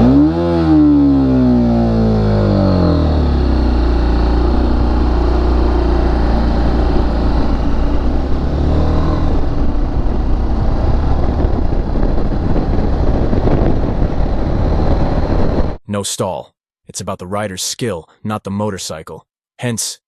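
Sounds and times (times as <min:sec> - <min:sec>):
motorcycle engine labouring: 0:00.0 - 0:15.8.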